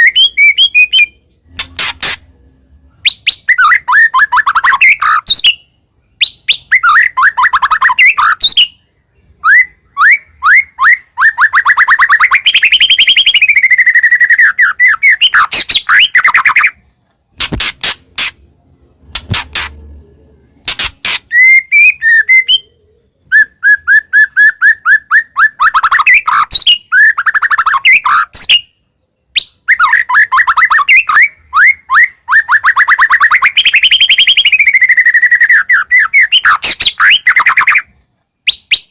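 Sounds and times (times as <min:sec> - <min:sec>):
bird singing whistled trills: 0:00.0 - 0:16.8, 0:17.4 - 0:38.9
sharp clicking bird notes: 0:01.4 - 0:02.3, 0:15.4 - 0:18.5, 0:19.1 - 0:20.0, 0:20.6 - 0:21.6.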